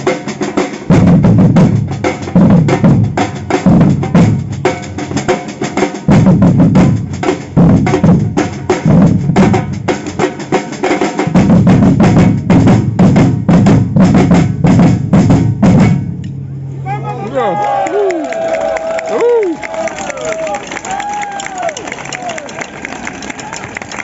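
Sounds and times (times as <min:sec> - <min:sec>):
samba percussion band: 0:00.0 - 0:16.2
bass drums pounding: 0:00.0 - 0:16.4.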